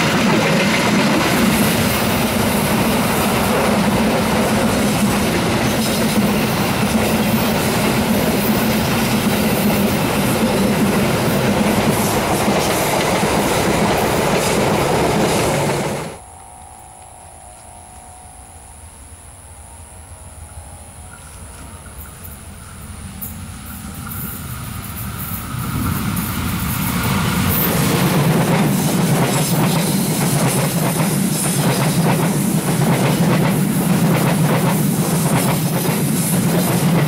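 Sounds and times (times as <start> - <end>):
train wheels rumbling on rails: 0.0 - 16.2, 20.7 - 37.0.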